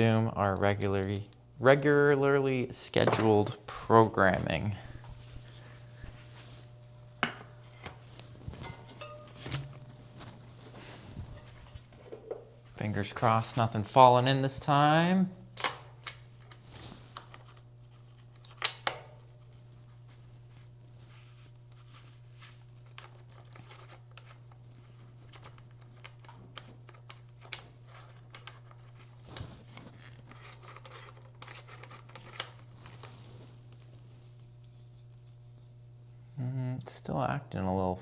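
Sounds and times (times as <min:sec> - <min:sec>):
low hum: 0:00.0 - 0:14.2.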